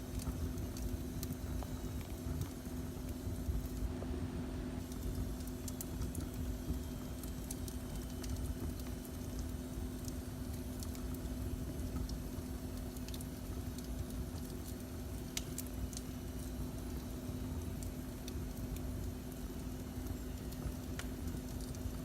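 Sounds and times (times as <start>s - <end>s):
fireplace fire crackling: 0.0s - 22.0s.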